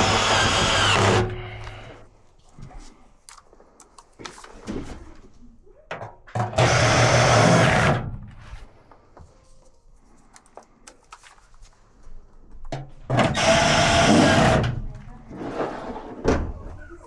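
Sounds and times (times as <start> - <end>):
small motor-driven tool running: 0.0 - 2.0, 6.6 - 8.0, 13.2 - 14.7.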